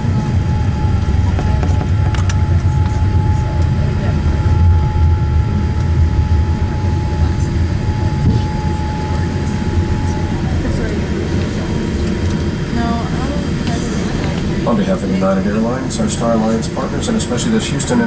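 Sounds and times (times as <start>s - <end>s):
aircraft cabin low rumble: 0.0s - 18.0s
steady whine: 0.0s - 18.0s.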